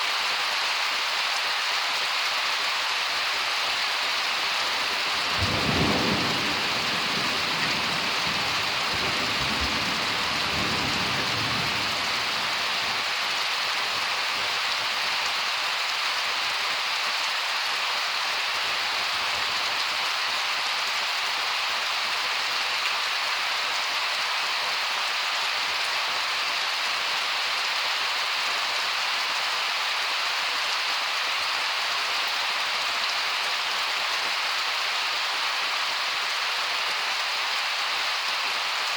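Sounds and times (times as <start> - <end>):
heavy rain: 0.0 - 38.9
thunder rumble: 5.2 - 12.3.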